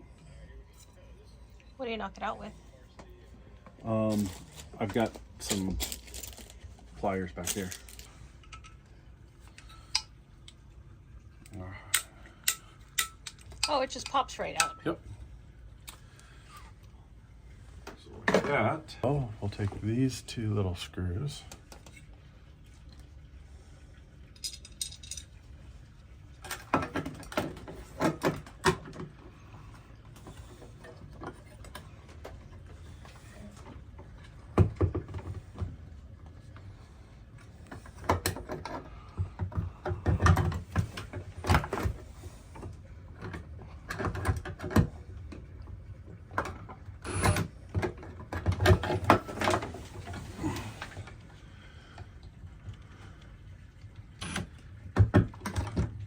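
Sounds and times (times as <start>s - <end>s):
small parts clicking and tapping: 11.4s - 14.8s, 24.3s - 25.4s.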